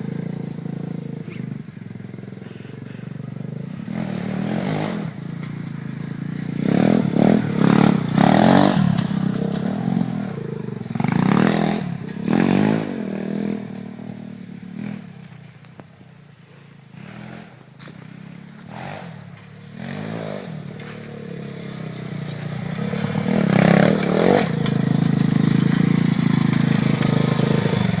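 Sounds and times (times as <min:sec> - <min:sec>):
dirt bike engine revving: 0:00.0 - 0:15.5, 0:16.9 - 0:28.0.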